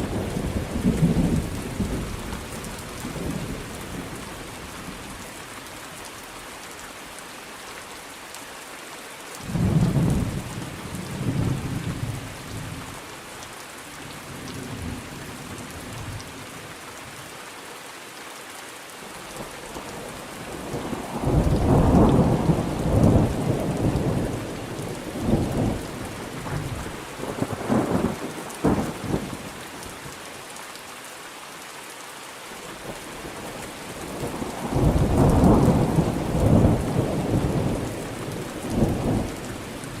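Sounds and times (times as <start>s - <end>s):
steady rain: 0.0s - 40.0s
rolling thunder: 20.7s - 29.3s, 34.2s - 39.4s.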